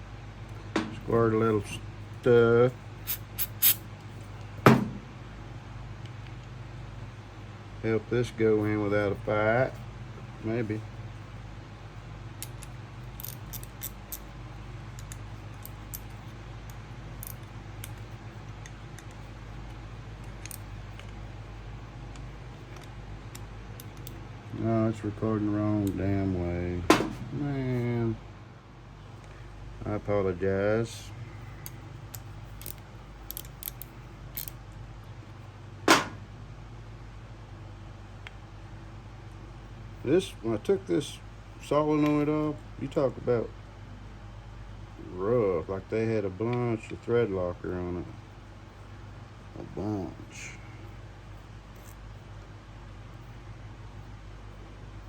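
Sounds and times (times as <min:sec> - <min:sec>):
steady low hum: 0:00.0 - 0:55.0
metallic clicks of hand tools: 0:03.1 - 0:03.8, 0:31.6 - 0:34.6
loud sharp snap: 0:35.8 - 0:36.2.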